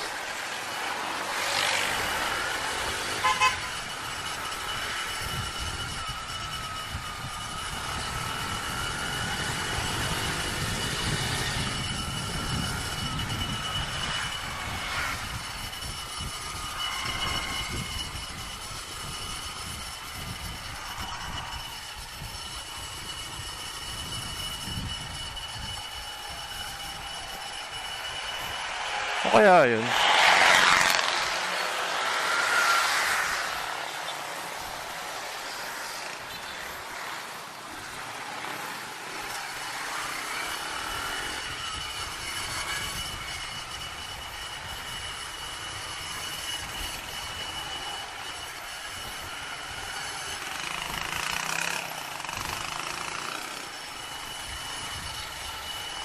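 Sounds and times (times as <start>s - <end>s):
thin high tone: 0.0s - 56.0s
wind rumble on microphone: 5.2s - 27.4s, 41.5s - 47.6s.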